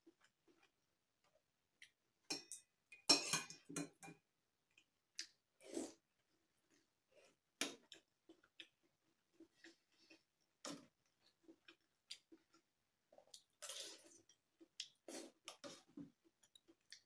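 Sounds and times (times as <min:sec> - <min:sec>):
slurping and chewing: 0:05.2 - 0:17.0.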